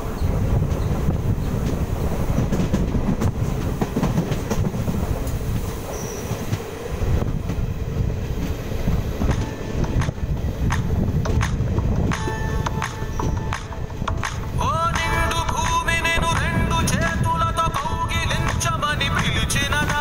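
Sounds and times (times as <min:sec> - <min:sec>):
rail clicks and clatter: 0:00.0 - 0:20.0
train wheels rumbling on track: 0:00.0 - 0:20.0.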